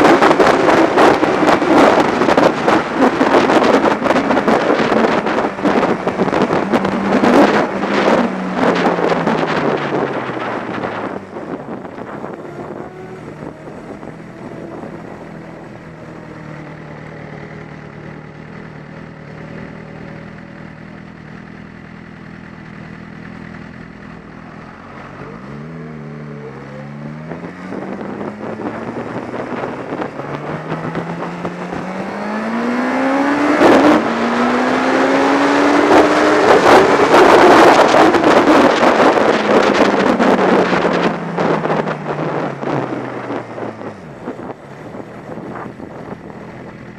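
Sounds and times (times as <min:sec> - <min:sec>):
wind rushing over microphone: 0:00.0 - 0:18.3, 0:24.2 - 0:46.9
motorcycle engine accelerating: 0:00.0 - 0:46.9.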